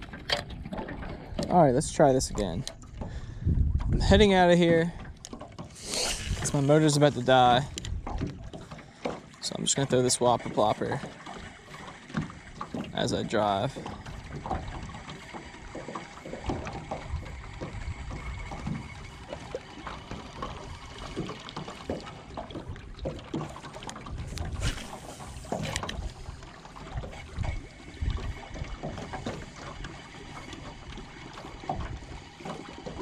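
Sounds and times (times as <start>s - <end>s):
faint boat motor hum: 0.0s - 33.0s
water slapping against hull: 0.0s - 33.0s
brief rush of noise: 5.8s - 6.5s.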